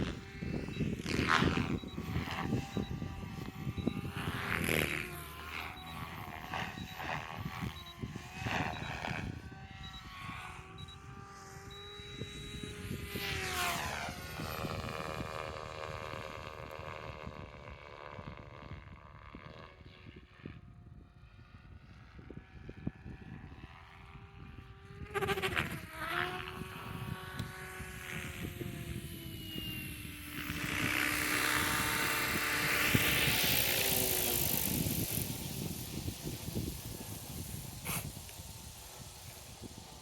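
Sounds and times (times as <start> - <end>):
helicopter whine: 0.0 - 40.0
wind buffeting microphone: 0.0 - 40.0
rushing hiss: 33.7 - 40.0.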